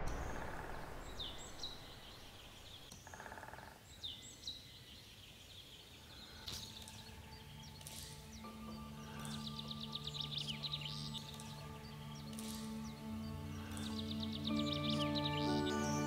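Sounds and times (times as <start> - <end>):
high downward-sliding bird chirps: 0.0 - 3.3.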